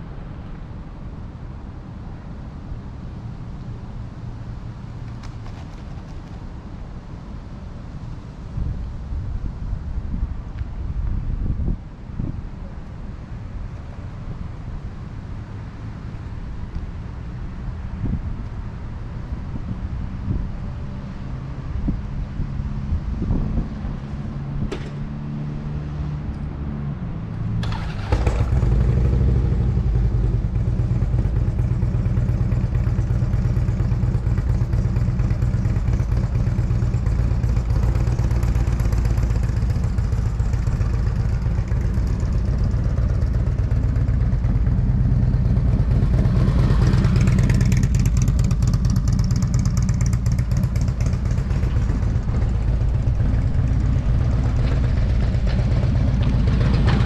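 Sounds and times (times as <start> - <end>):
motorcycle engine running: 27.6 - 57.0.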